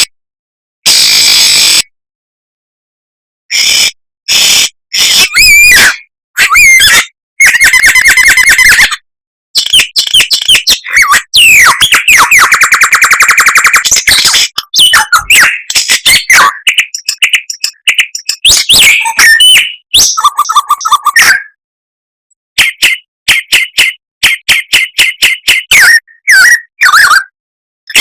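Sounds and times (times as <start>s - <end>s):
fast bird trill: 5.0s - 9.0s, 9.6s - 21.6s, 22.6s - 27.3s
songbird singing: 13.8s - 21.3s.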